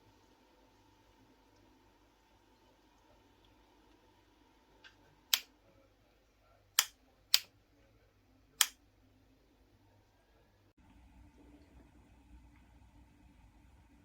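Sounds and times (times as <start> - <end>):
sharp short clicks: 6.8 - 7.5.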